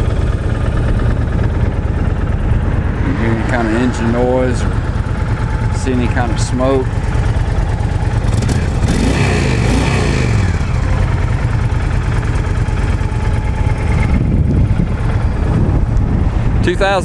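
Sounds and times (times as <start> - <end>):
motorcycle engine idling: 0.0 - 16.4.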